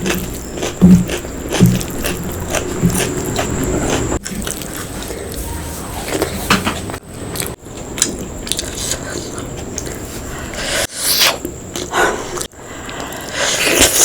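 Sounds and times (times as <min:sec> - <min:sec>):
person biting and chewing food: 0:00.0 - 0:05.4, 0:06.0 - 0:14.0.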